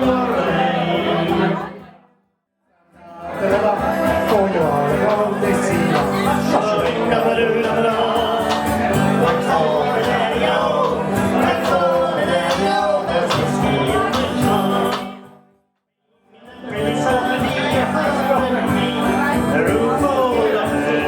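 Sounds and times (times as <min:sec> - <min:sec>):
man singing: 0:00.0 - 0:01.9, 0:02.9 - 0:15.4, 0:16.2 - 0:21.0
folk band playing: 0:03.3 - 0:15.3.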